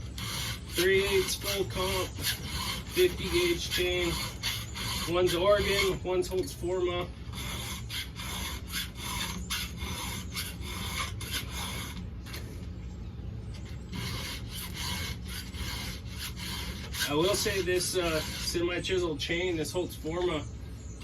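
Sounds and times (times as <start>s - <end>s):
file rasping on chainsaw chain: 0.0s - 6.3s, 7.3s - 12.0s, 13.9s - 19.1s.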